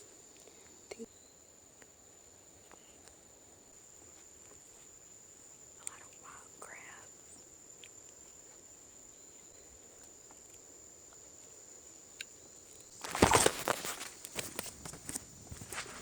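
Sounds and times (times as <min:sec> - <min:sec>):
crackling and rustling: 0:12.6 - 0:16.0.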